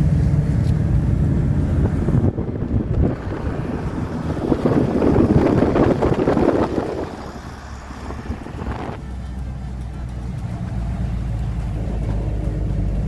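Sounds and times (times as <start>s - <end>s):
wind noise on microphone: 0.0s - 9.3s
pickup truck engine running: 0.0s - 13.0s.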